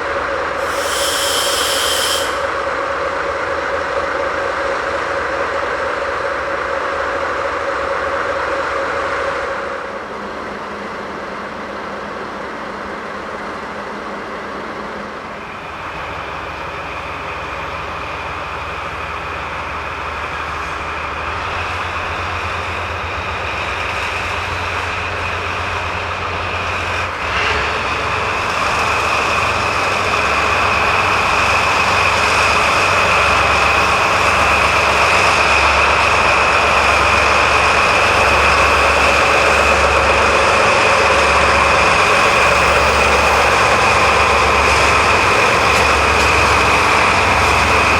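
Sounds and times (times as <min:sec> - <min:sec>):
freight train wheels rumbling: 0:00.0 - 0:47.9
train clank: 0:37.8 - 0:47.9.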